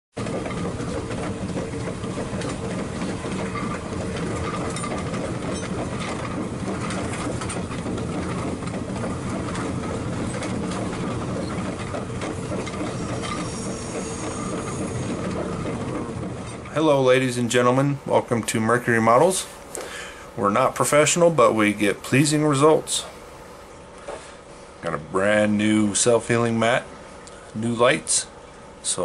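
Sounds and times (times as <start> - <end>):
wheel clicks on track: 0.2 - 23.1
train rumbling along rails: 0.2 - 23.6.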